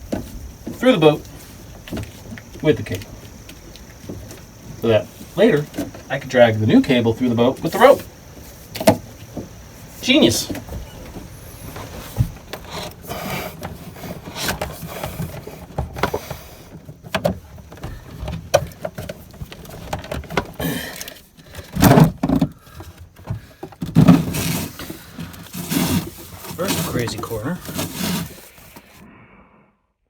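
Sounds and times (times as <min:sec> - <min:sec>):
cable scraping and knocking in hull: 0:23.8 - 0:29.0.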